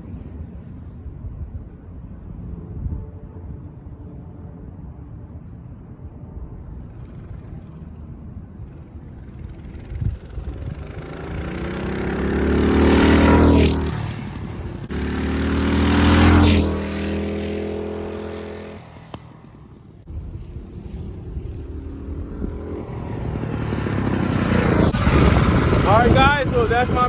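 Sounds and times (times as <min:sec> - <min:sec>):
mini bike engine passing by: 0:06.6 - 0:27.0.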